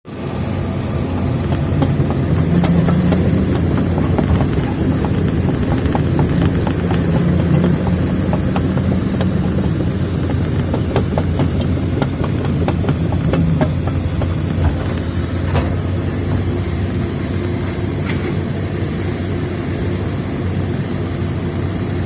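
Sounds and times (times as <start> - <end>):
excavator diesel engine running: 0.1 - 22.0
metallic knocks and clanks: 1.4 - 16.5.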